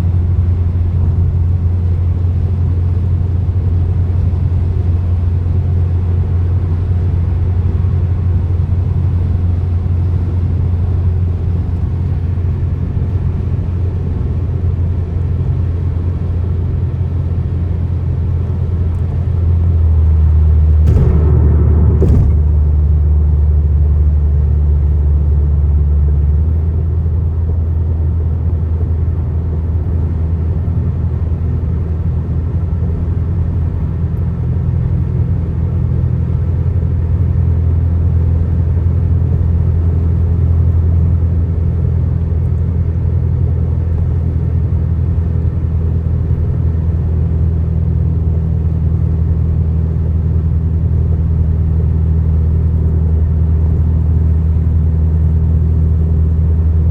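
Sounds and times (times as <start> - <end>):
car driving at highway speed: 20.8 - 23.3.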